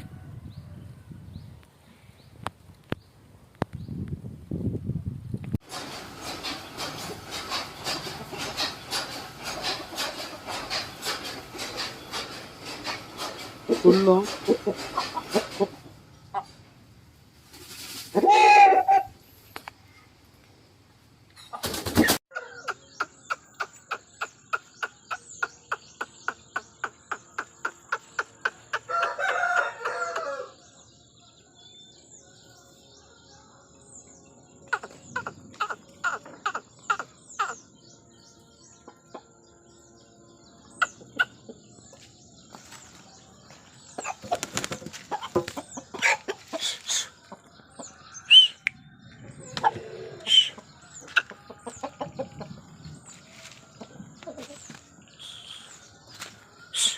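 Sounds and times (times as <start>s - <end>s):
chickens clucking: 5.7s - 19.7s, 21.3s - 30.6s, 34.6s - 37.8s, 38.8s - 39.4s, 40.6s - 56.9s
chicken short calls: 49.5s - 50.6s.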